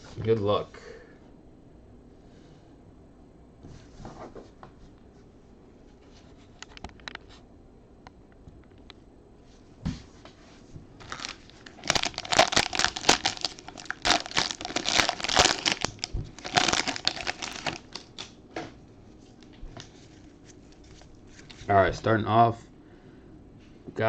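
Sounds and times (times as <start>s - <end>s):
plastic wrapping crinkling: 11.0s - 18.4s.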